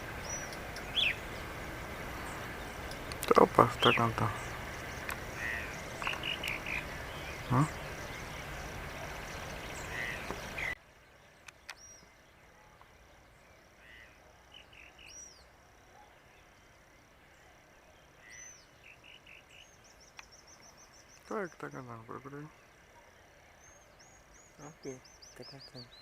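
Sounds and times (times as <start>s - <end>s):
noisy rush: 0.0s - 10.8s
small birds calling: 0.0s - 26.0s.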